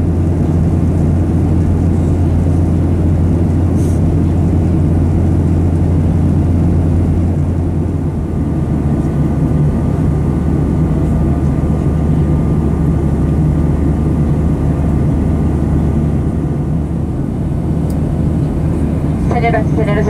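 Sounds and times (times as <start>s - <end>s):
aircraft cabin engine drone: 0.0s - 20.0s
faint steady tones: 19.0s - 20.0s.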